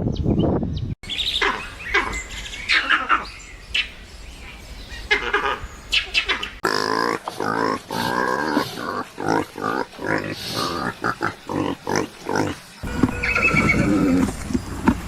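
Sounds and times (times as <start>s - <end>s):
horse whinny: 12.8s - 14.4s
horse calling: 12.8s - 15.0s.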